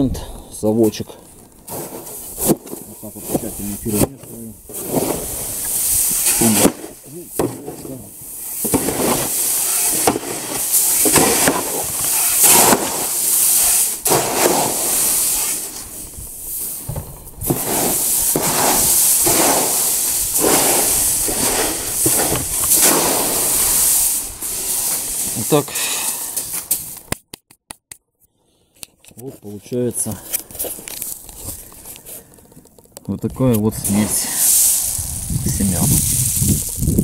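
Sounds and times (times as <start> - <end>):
dry grains rattling in a metal tub: 8.5 - 15.8, 17.5 - 26.6, 33.8 - 36.9.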